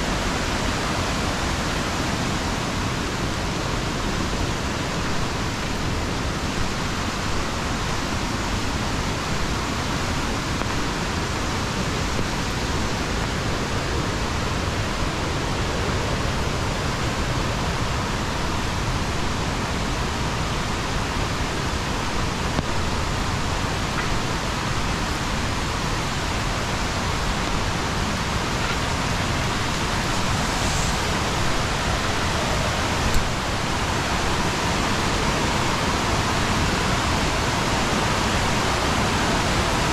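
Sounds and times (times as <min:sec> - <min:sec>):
water rushing down: 0:22.2 - 0:39.9.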